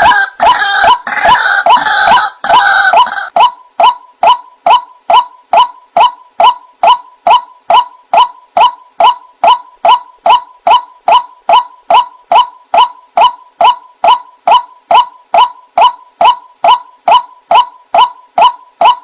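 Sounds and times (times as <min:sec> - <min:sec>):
bird calling sharp notes: 0:00.0 - 0:19.0.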